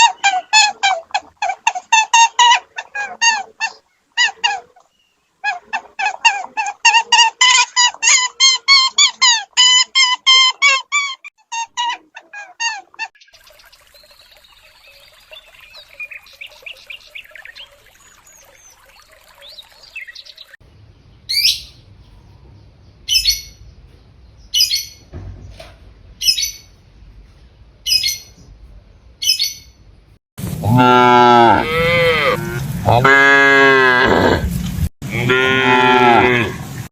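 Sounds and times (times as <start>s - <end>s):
birds twittering: 11.6s - 26.8s, 27.8s - 29.9s
outdoor rumble: 20.6s - 36.9s.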